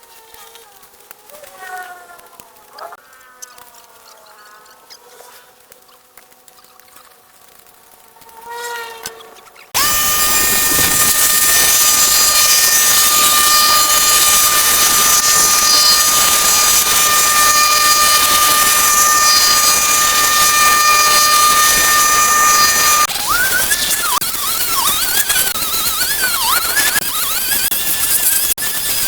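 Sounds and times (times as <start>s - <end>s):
machine hissing with high whine: 9.7s - 29.0s.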